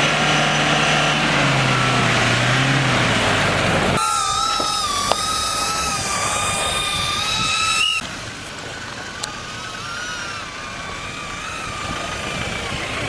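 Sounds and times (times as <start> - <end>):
off-road vehicle whining: 0.0 - 13.0.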